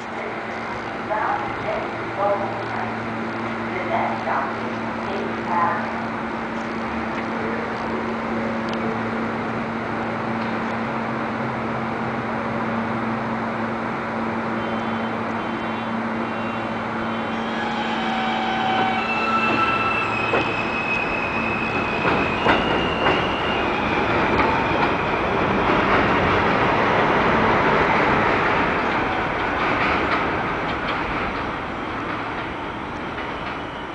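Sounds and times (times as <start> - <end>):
train propulsion whining: 0.0 - 33.9
train wheel noise: 0.0 - 33.9
wheels clacking over rail joints: 18.2 - 20.8, 21.4 - 33.9.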